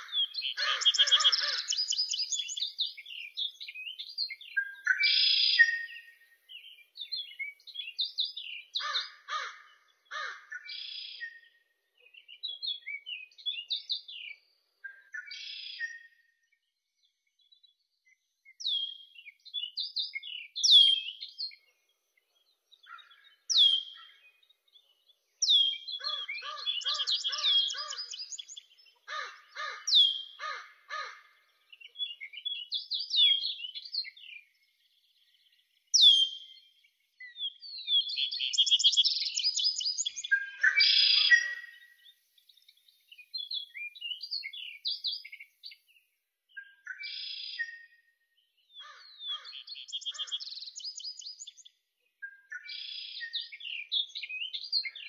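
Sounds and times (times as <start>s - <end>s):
low pulsed bird call: 0.0s - 8.9s
songbirds chirping and trilling: 0.0s - 55.0s.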